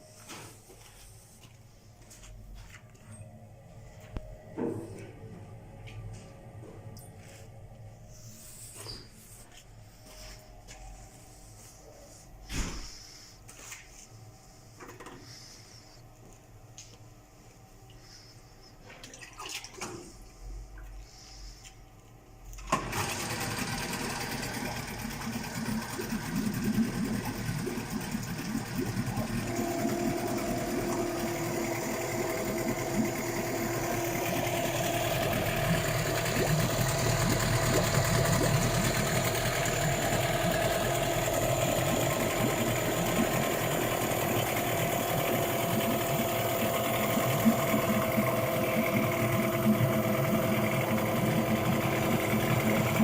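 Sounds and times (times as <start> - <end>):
outboard motor running: 22.6 - 53.0.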